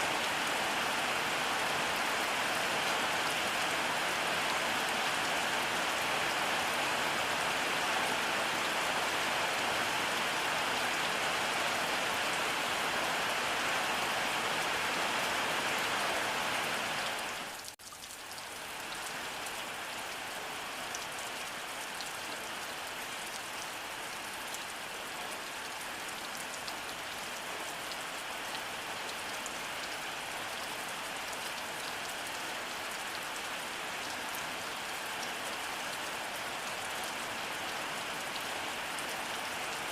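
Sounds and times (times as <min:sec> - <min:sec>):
raindrops pattering: 0:17.4 - 0:20.3.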